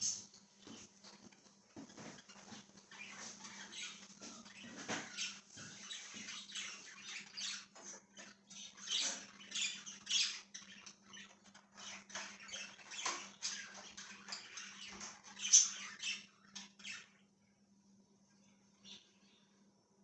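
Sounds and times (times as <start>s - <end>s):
faint low hum: 0.0s - 20.0s
budgerigars chirping: 1.9s - 17.2s.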